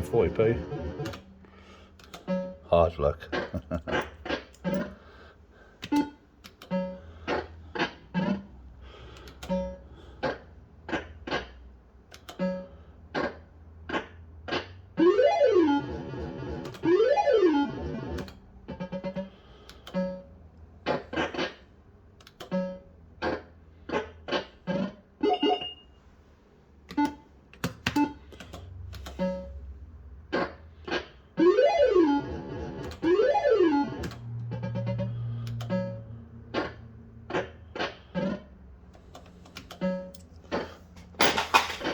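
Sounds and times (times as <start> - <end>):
fruit machine short beeping tones: 25.3 - 26.0.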